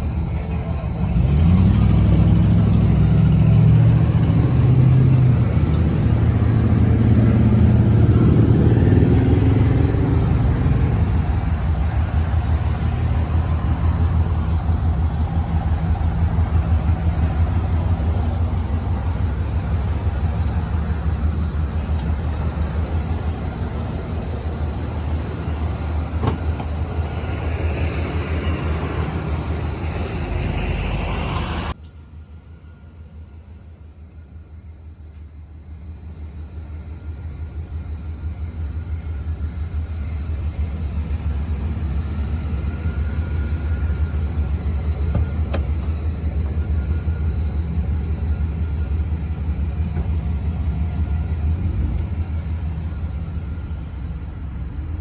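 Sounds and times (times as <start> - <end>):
car engine running: 1.0 - 30.4, 40.4 - 53.4.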